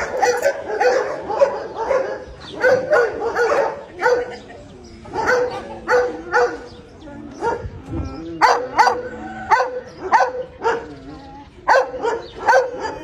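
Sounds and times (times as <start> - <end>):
dog barking: 0.0 - 4.4, 5.1 - 6.7, 7.4 - 7.7, 8.4 - 11.0, 11.7 - 13.0.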